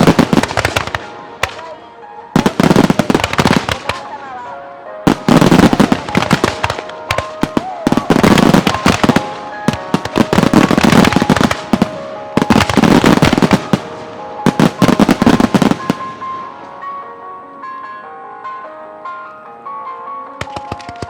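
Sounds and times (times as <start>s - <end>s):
fireworks bangs and cracks: 0.0s - 1.7s, 2.4s - 4.2s, 5.1s - 16.7s, 20.4s - 21.0s
music playing: 0.0s - 21.0s.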